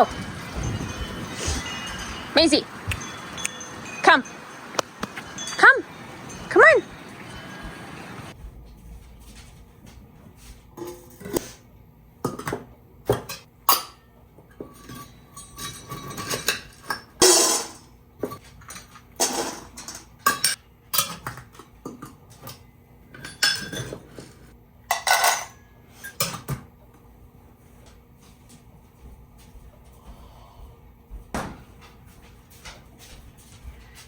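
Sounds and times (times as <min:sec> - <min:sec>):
dishes and utensils clinking: 0:00.0 - 0:08.4, 0:12.3 - 0:26.6.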